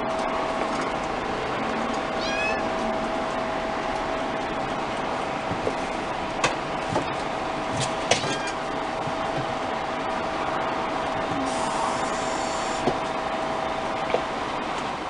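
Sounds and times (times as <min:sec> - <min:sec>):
constant hum: 0:00.0 - 0:15.0
kitten mewing: 0:02.2 - 0:02.7.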